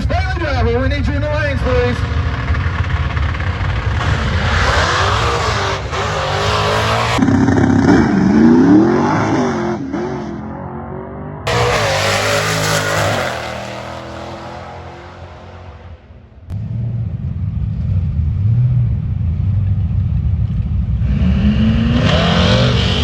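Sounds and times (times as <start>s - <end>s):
car engine revving loudly: 1.8s - 16.9s, 21.0s - 23.0s.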